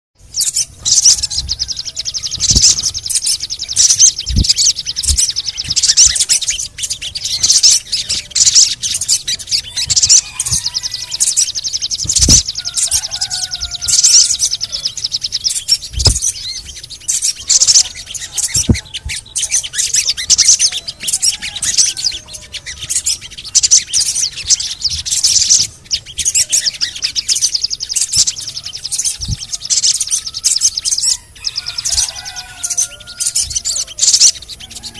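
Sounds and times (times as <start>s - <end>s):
bird rapid high chattering: 0.2s - 34.9s
short low thumps: 4.2s - 5.9s.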